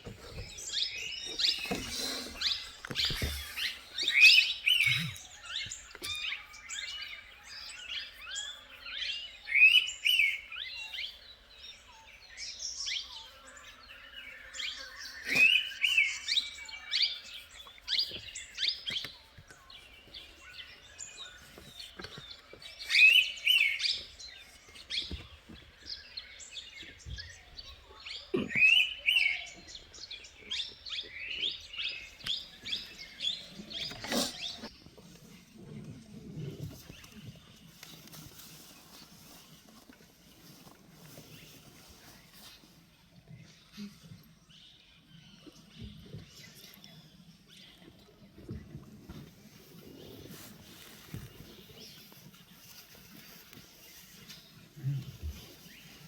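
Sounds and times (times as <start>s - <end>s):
birds chirping and calling: 0.0s - 42.8s.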